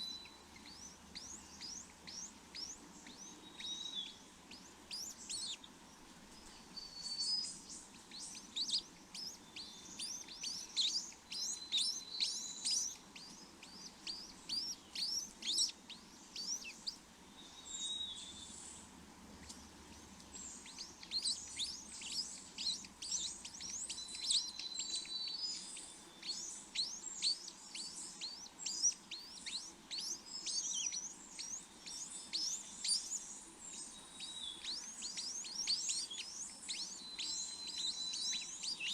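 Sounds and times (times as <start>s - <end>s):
small birds chirping: 0.0s - 38.9s
bird whistles: 8.2s - 15.8s, 21.0s - 33.2s, 34.2s - 38.9s.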